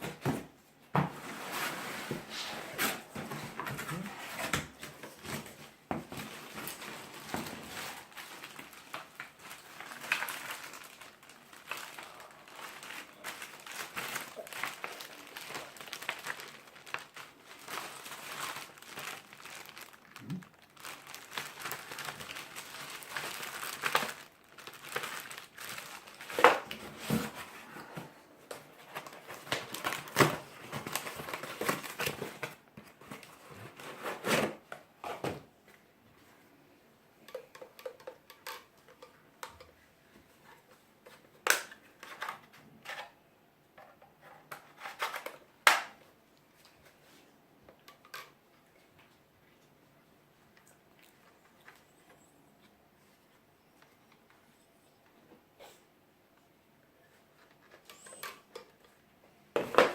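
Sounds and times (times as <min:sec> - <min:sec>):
packaging crinkling: 0:02.8 - 0:34.6
clicks and knocks of handling: 0:37.2 - 0:39.8.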